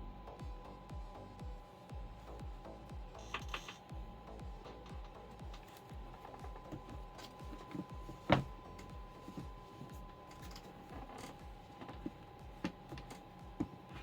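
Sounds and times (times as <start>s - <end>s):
faint high hum: 0.0s - 14.0s
sneaker rustling and knocking: 5.0s - 14.0s.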